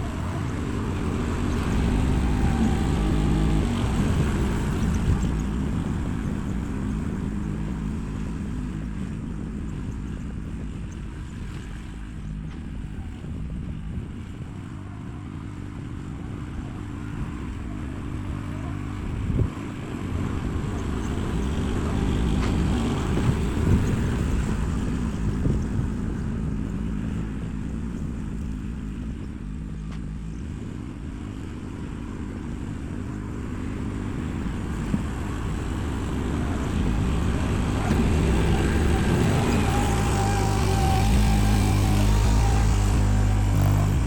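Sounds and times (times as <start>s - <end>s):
heavy machinery engine running: 0.0s - 44.0s.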